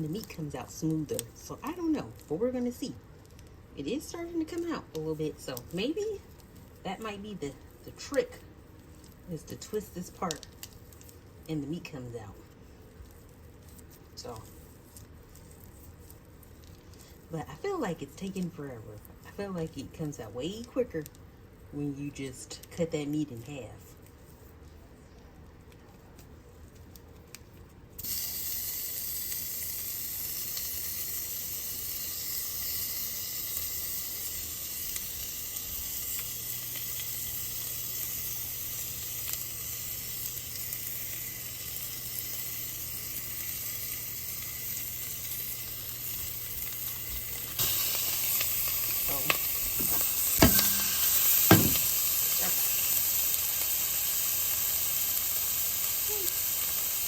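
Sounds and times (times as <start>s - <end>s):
ground beef sizzling in a pan: 28.0s - 57.0s
sharp clicks and knocks: 49.2s - 52.0s.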